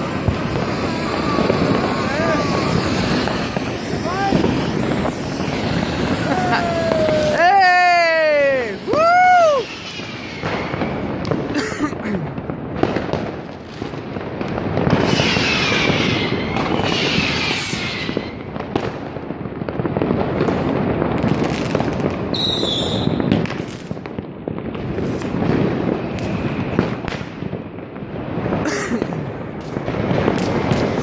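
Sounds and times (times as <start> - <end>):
falling firework whistles: 0.0 - 11.6, 14.8 - 18.9, 21.4 - 23.7
rocket bangs: 0.0 - 23.6, 28.4 - 31.0
firecrackers crackling: 0.0 - 31.0
shrill high whistle: 22.4 - 23.2.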